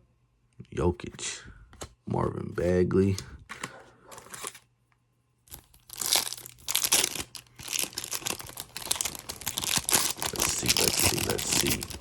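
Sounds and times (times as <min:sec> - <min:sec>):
plastic wrapper crinkling: 0:05.5 - 0:12.0.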